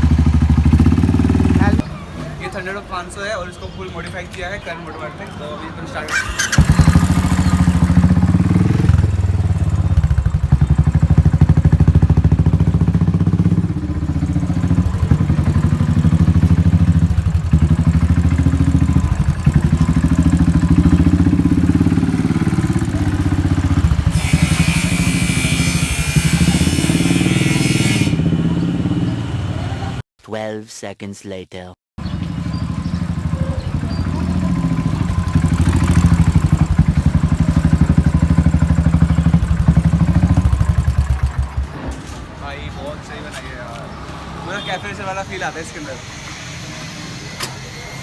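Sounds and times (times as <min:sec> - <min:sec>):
motorcycle engine idling: 0:00.0 - 0:01.9, 0:06.1 - 0:30.0, 0:32.0 - 0:46.0
hiss: 0:24.1 - 0:28.4, 0:45.4 - 0:48.0.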